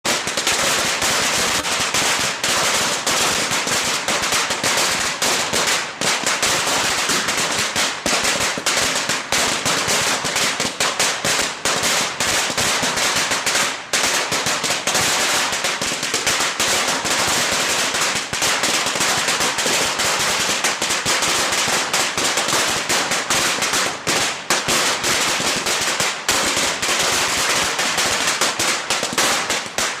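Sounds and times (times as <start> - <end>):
firecrackers crackling: 0.0 - 30.0.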